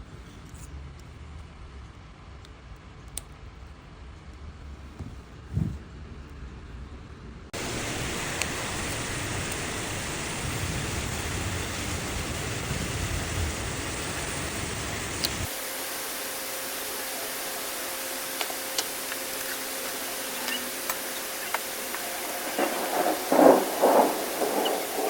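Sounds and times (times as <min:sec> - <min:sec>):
faint steady hum: 0:00.0 - 0:25.0
steady hiss: 0:07.6 - 0:25.0
small clicks: 0:15.2 - 0:15.5
low rumble: 0:21.4 - 0:25.0.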